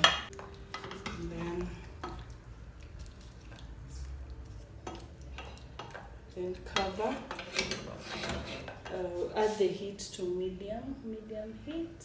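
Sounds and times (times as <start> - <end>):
low steady hum: 0.0 - 12.0
metal utensil clinking on pot: 4.8 - 9.0.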